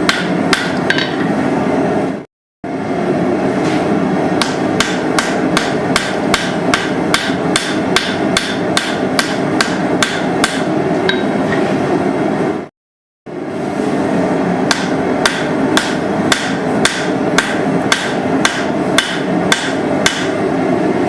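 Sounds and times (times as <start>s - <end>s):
hammer striking steel: 0.0s - 1.3s, 4.4s - 11.4s, 14.7s - 20.4s.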